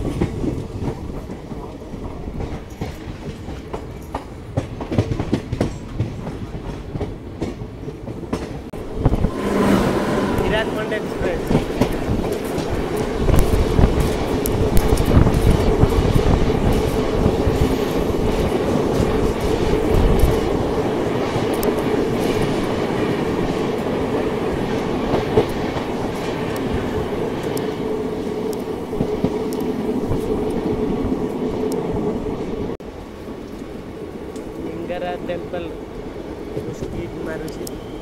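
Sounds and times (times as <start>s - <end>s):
train wheels clickety-clack: 0.0s - 32.7s, 36.5s - 38.0s
passing train rushing: 0.0s - 38.0s.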